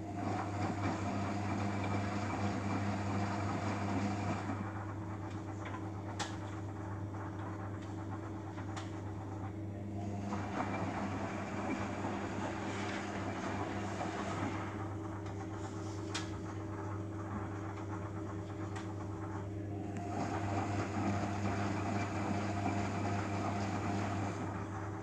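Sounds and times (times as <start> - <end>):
washing machine drum motor humming: 0.0 - 25.0.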